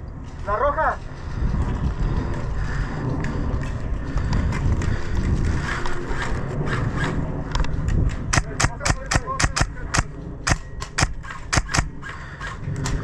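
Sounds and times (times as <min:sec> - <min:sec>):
low rumble on microphone: 0:00.0 - 0:13.0
running footsteps: 0:00.2 - 0:06.6
sharp clicks: 0:07.0 - 0:13.0.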